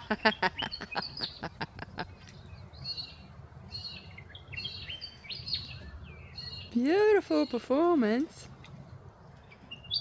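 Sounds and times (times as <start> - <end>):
soft high bird chirps: 2.1 - 7.7, 9.4 - 10.0.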